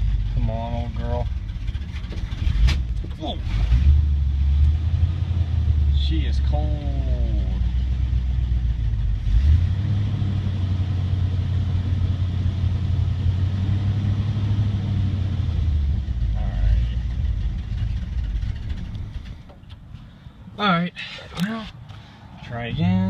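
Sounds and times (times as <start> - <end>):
truck engine running rough: 0.0 - 20.4.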